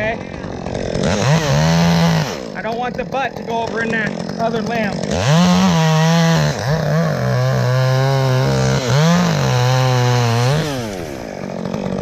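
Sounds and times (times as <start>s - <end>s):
chainsaw cutting: 0.0s - 12.0s.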